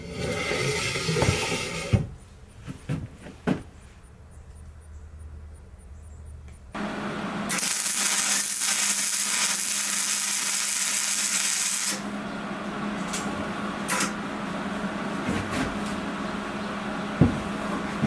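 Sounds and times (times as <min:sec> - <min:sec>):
loud hissing noise: 0:06.8 - 0:12.1
power tool humming: 0:06.8 - 0:14.6.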